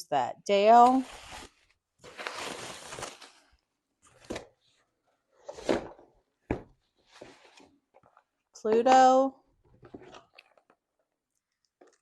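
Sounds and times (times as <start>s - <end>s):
packaging rustling: 1.0s - 4.6s.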